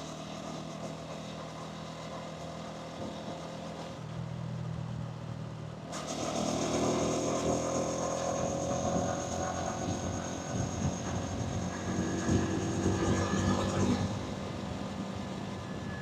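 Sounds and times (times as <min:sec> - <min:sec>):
wind and road noise: 0:00.0 - 0:16.0
motorcycle engine revving: 0:05.9 - 0:15.8.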